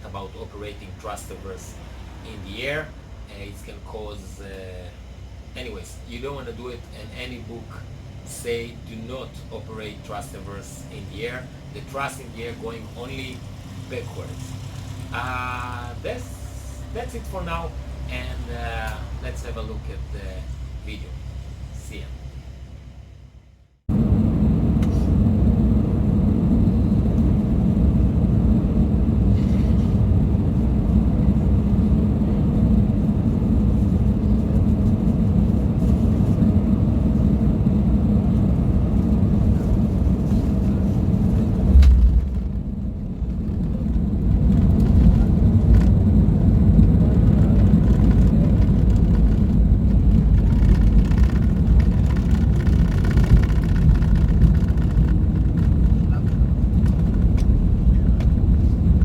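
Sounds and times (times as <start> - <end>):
airliner cabin rumble: 0.0 - 59.0
heavy low thump: 41.3 - 43.7.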